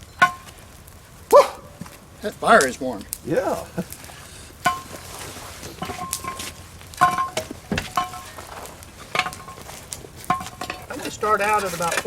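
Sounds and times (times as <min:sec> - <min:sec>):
shovel clanking on metal lid: 0:04.6 - 0:12.0.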